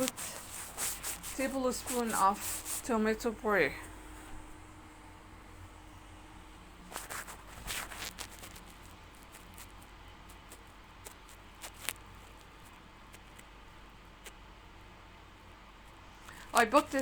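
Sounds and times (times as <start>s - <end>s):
wet rustling of potato slices: 0.0s - 3.2s, 6.8s - 14.5s.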